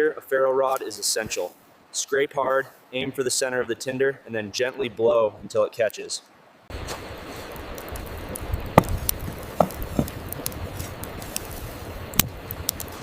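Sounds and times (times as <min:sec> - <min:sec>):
campfire crackling and popping: 0:00.6 - 0:01.5, 0:06.7 - 0:13.0.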